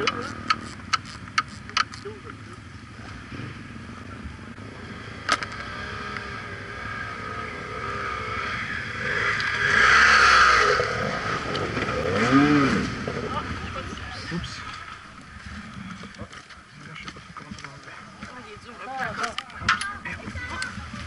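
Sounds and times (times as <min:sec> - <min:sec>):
motorcycle engine revving: 0:00.0 - 0:16.2.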